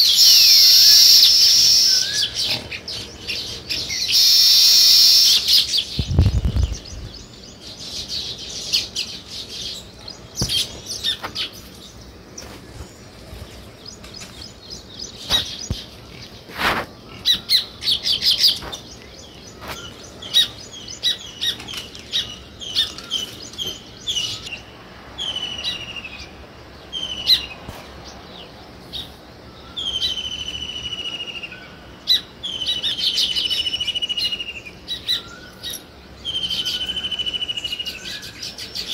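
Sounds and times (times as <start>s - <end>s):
bird trills: 0.0s - 11.7s
songbirds chirping: 0.0s - 38.9s.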